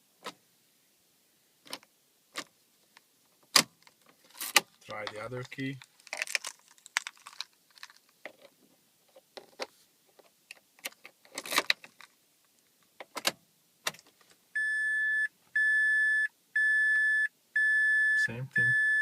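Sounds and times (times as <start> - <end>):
steady electronic beep: 14.6 - 19.0.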